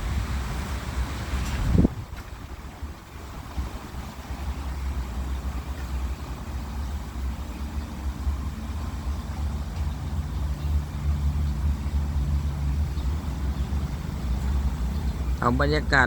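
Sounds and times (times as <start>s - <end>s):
gusty wind buffeting microphone: 0.0s - 16.0s.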